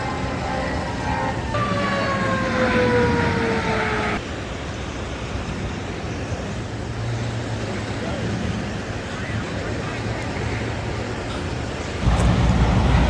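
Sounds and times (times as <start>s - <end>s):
emergency vehicle siren: 0.0s - 4.2s, 12.0s - 13.0s
steady low rumble: 12.0s - 13.0s.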